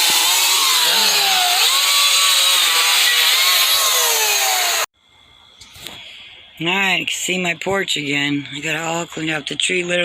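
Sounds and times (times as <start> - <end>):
chainsaw cutting wood: 0.0 - 4.9.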